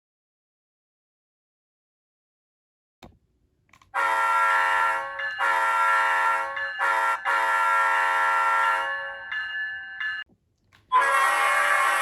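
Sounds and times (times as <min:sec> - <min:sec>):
locomotive air horn blasts: 0:04.0 - 0:09.1, 0:10.9 - 0:12.0.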